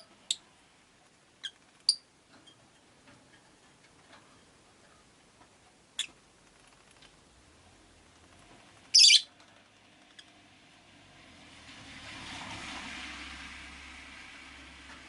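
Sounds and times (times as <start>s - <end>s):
lovebird high call: 8.9s - 9.3s
passing vehicle: 9.8s - 15.0s.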